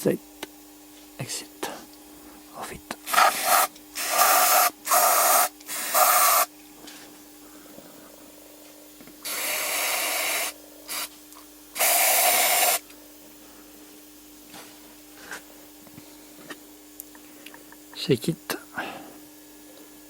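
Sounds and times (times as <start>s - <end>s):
aerosol spray hissing: 3.1s - 6.5s, 9.2s - 11.1s, 11.8s - 12.8s.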